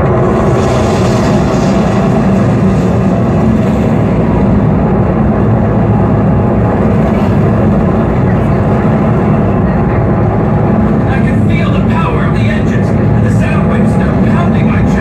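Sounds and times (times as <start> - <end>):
rocket engines roaring: 0.0 - 15.0.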